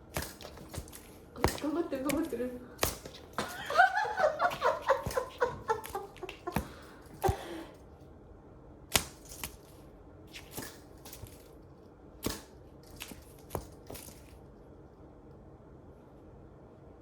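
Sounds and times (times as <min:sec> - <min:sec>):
rustling and crunching: 0:00.0 - 0:07.6, 0:08.9 - 0:14.6.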